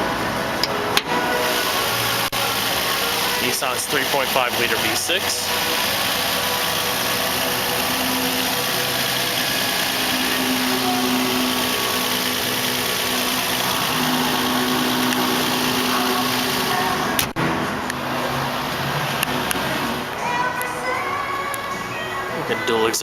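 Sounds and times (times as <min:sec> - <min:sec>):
car engine idling: 0:00.0 - 0:21.6.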